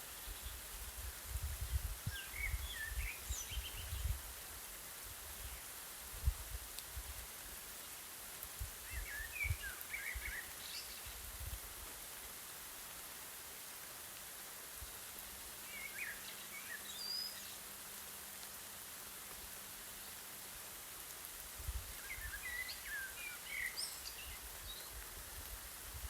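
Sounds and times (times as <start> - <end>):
light rain hissing: 0.0 - 26.0
songbird chirping: 2.0 - 4.2, 8.8 - 11.5, 15.6 - 17.8, 21.9 - 25.5.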